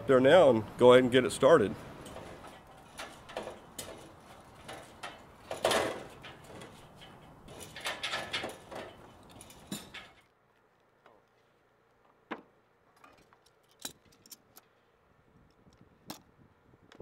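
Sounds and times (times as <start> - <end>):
metal ladder clanking under boots: 2.0 - 10.3.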